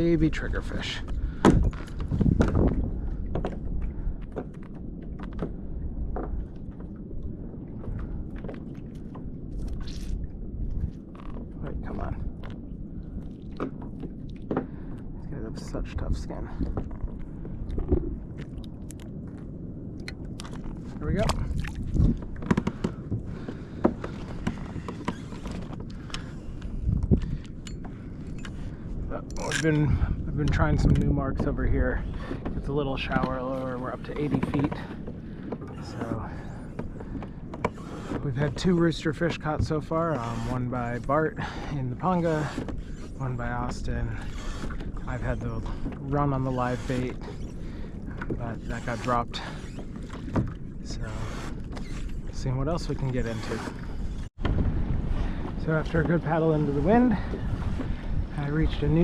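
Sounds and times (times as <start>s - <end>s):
steady low rumble: 0.0s - 24.9s, 25.6s - 37.6s, 43.1s - 49.6s, 52.2s - 59.0s
water: 0.0s - 59.0s
wind: 0.0s - 59.0s
fishing gear clicking and knocking: 20.0s - 23.2s.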